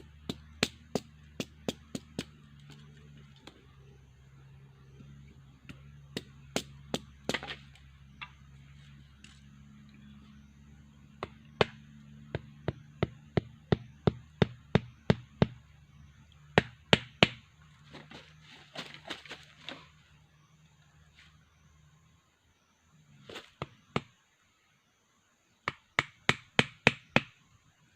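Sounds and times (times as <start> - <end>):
tool striking wood: 5.6 - 7.6, 11.2 - 15.6, 16.6 - 17.4, 25.7 - 27.4.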